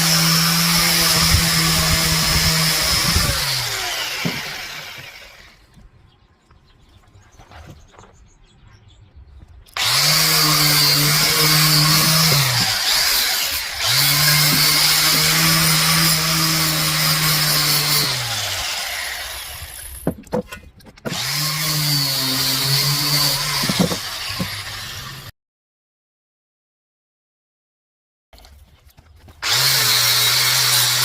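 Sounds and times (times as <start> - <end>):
power tool motor hum: 0.0 - 5.6, 9.8 - 20.0, 29.4 - 31.0.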